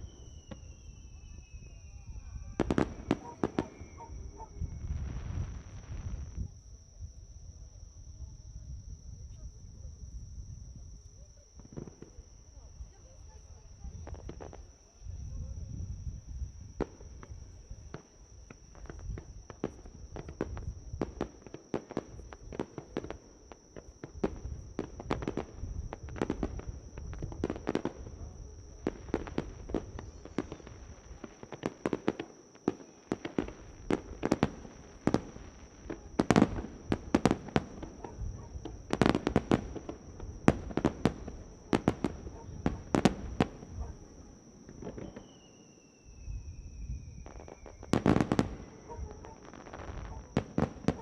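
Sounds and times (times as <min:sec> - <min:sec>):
fireworks bangs and crackles: 0:00.0 - 0:06.9, 0:08.9 - 0:51.0.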